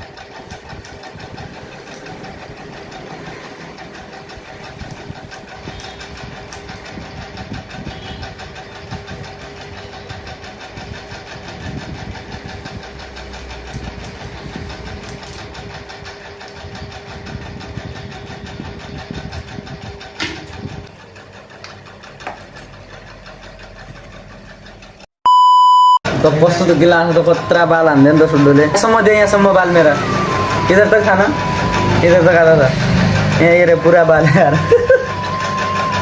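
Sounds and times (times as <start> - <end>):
small electric motor buzzing: 1.7 - 6.9.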